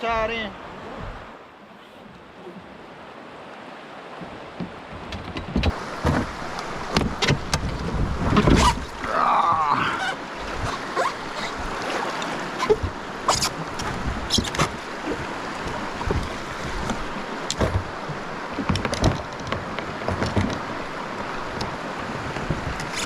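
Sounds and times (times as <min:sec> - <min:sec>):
river water splashing: 0:00.0 - 0:23.0
wind on microphone: 0:00.7 - 0:01.4, 0:05.2 - 0:23.0
knocks against kayak hull: 0:12.5 - 0:20.7.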